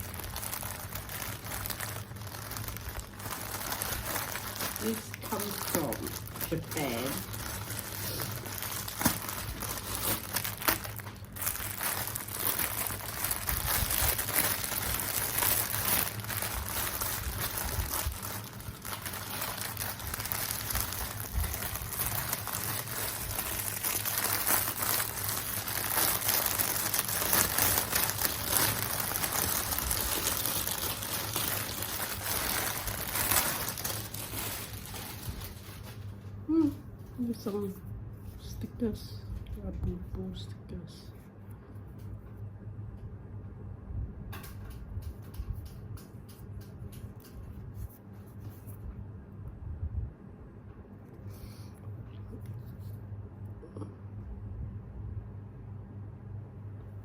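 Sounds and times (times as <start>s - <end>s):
small clicks and crackles: 0.0s - 36.1s, 44.4s - 48.8s
packaging crinkling and rustling: 0.0s - 37.8s.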